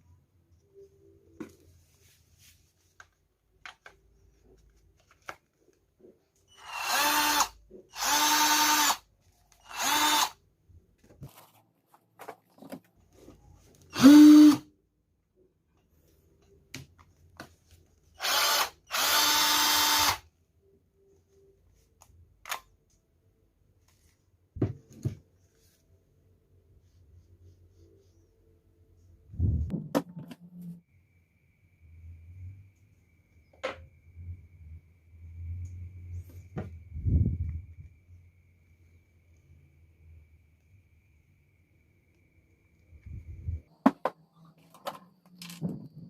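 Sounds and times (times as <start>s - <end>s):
cordless drill motor bursts: 6.5s - 9.0s, 9.6s - 10.4s, 13.9s - 14.6s, 18.2s - 20.2s.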